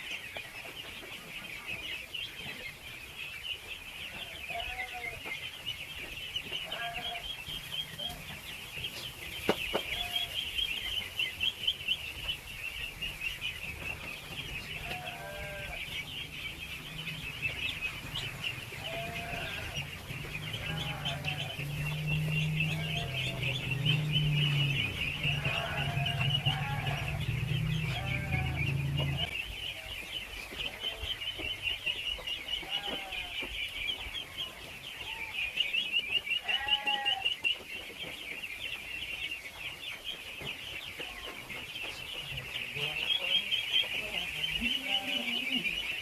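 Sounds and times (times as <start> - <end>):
ducklings peeping: 0.0 - 46.0
low hum: 15.8 - 29.4.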